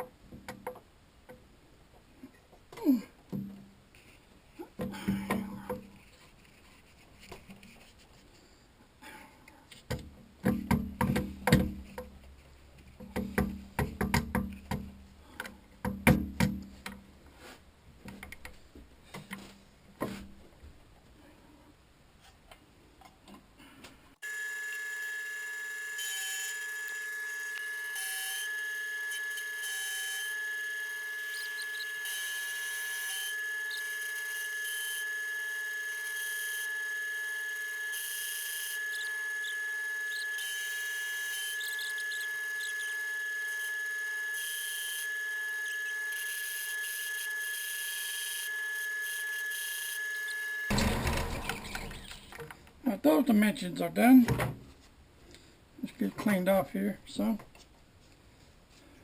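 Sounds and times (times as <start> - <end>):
machine tool whining: 24.2 - 52.4.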